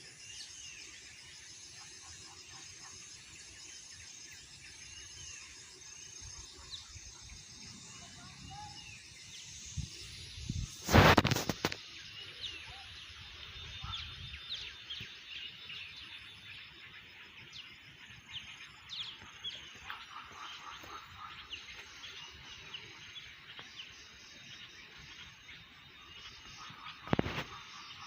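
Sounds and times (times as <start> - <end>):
faint outdoor hush: 0.0 - 28.0
small birds chirping: 0.0 - 28.0.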